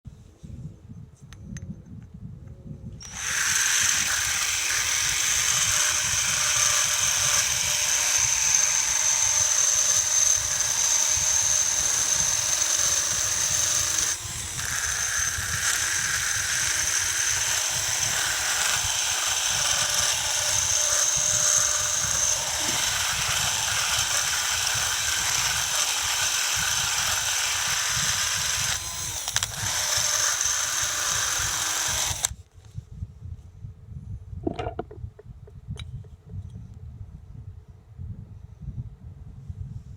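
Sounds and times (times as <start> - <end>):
power tool whining: 3.0 - 32.4.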